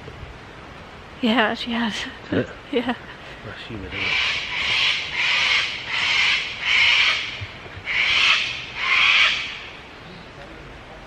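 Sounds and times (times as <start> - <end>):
harsh rasping animal calls: 3.9 - 9.8.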